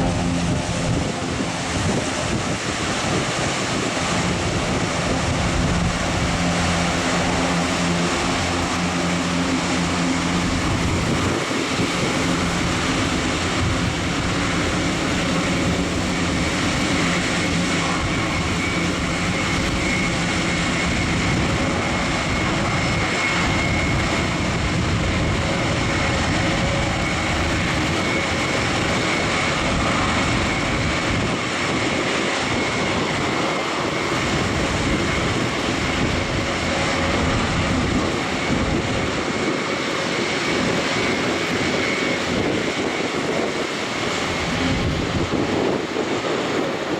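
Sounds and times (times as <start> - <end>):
propeller and engine drone: 0.0 - 46.9.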